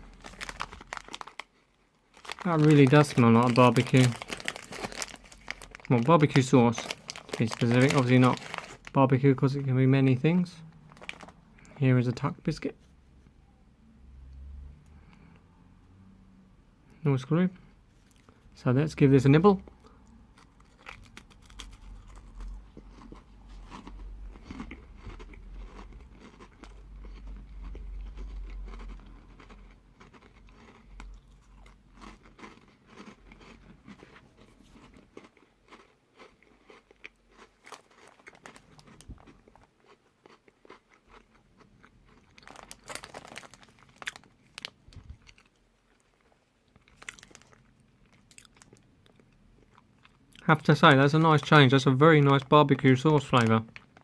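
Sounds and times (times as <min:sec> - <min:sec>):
person crunching crackers: 0:00.0 - 0:10.2, 0:10.8 - 0:12.4, 0:19.6 - 0:54.0.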